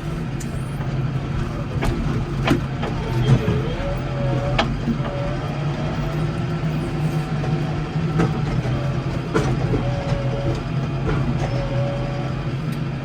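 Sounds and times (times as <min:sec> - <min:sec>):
garden tractor engine running: 0:00.0 - 0:13.0.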